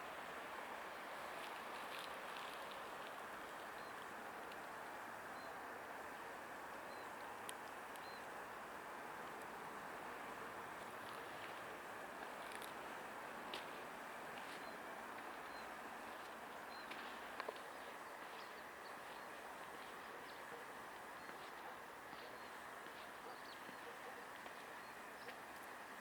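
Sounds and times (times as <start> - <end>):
background hum: 0.0 - 26.0
faint bird chirps: 8.0 - 8.3, 16.6 - 25.4.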